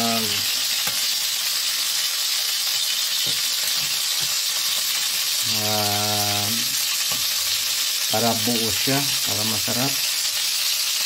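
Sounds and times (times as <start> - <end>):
person's voice: 0.0 - 0.5, 5.5 - 6.8, 8.1 - 10.0
chicken frying in oil: 0.0 - 11.0.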